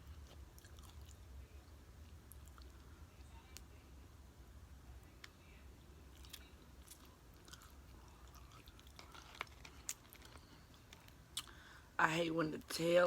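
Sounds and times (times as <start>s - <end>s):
chewing crunches: 0.0s - 1.2s, 2.0s - 2.9s, 6.1s - 11.6s.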